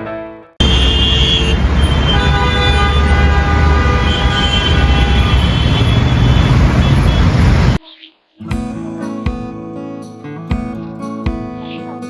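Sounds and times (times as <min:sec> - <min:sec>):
loud low rumble with held tones: 0:00.6 - 0:07.8.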